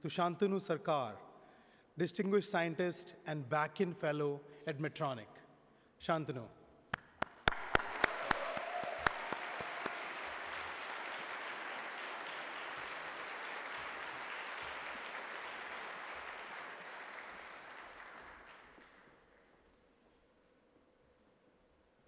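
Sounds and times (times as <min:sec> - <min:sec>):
audience applauding: 0:07.0 - 0:19.1.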